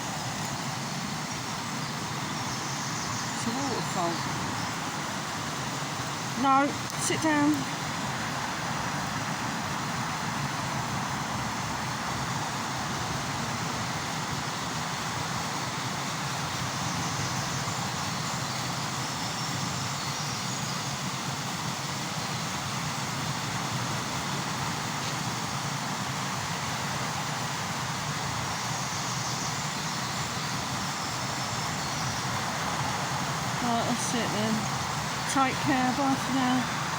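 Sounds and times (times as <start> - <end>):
waterfall rushing: 0.0 - 19.9, 20.8 - 36.9.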